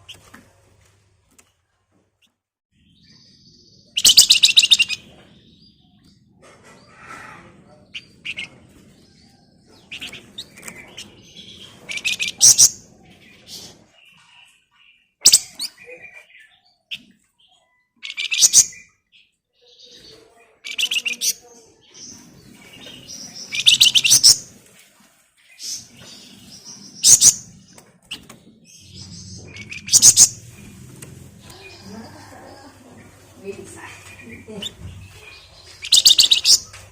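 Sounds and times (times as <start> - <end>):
songbird singing chattering trills: 2.8 - 6.1, 22.2 - 24.4, 25.8 - 36.9.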